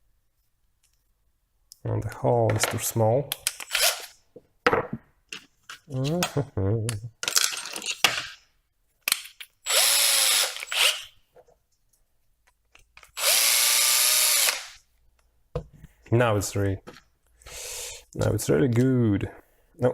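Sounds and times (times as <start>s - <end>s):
electric drill bursts: 9.7s - 11.1s, 13.2s - 14.8s.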